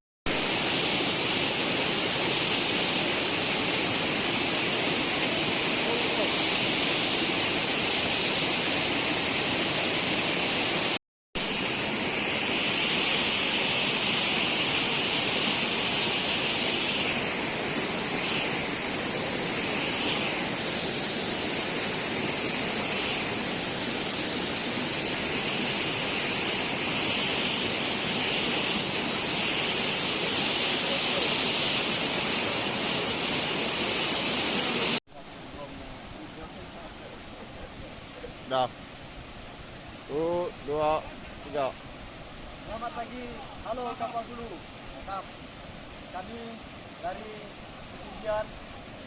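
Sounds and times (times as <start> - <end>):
insects buzzing chorus: 11.8 - 35.0.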